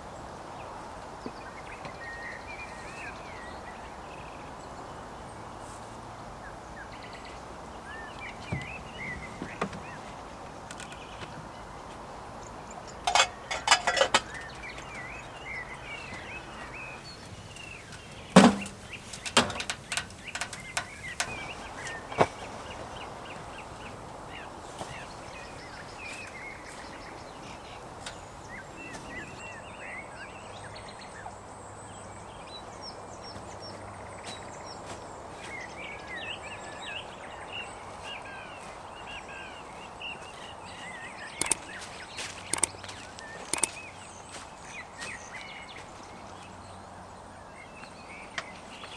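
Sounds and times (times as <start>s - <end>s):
outdoor background hiss: 0.0s - 48.9s
small birds chirping and singing: 0.2s - 48.9s
sharp knocks: 18.4s - 21.4s.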